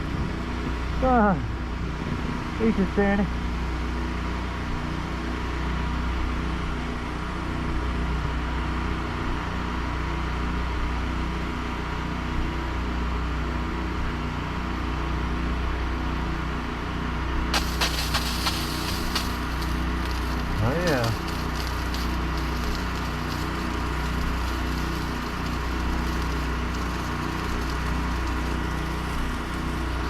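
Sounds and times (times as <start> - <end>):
small gas engine running: 17.6 - 30.0
spray hissing on a surface: 17.6 - 30.0.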